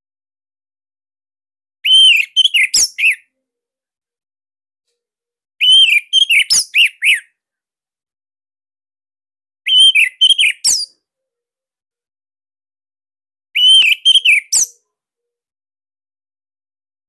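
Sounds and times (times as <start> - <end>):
thrush singing whistled notes: 1.9 - 3.2, 5.6 - 7.2, 9.7 - 11.0, 13.6 - 14.8.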